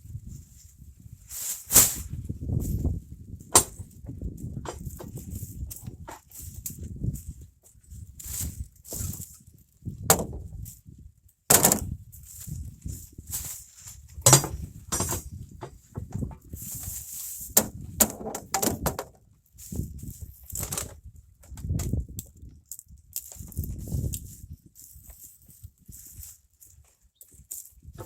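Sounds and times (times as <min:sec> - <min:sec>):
objects knocking in truck bed: 0:10.1 - 0:10.5, 0:14.2 - 0:16.4.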